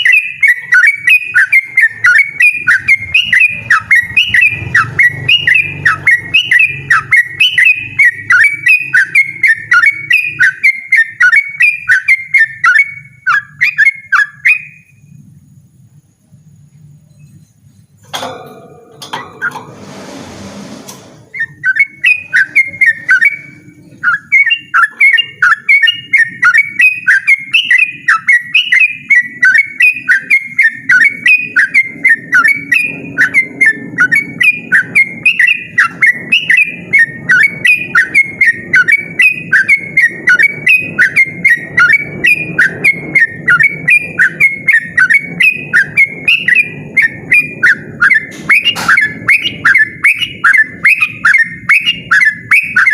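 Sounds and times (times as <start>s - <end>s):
bird singing whistled phrases: 0.0s - 15.0s, 21.3s - 52.9s.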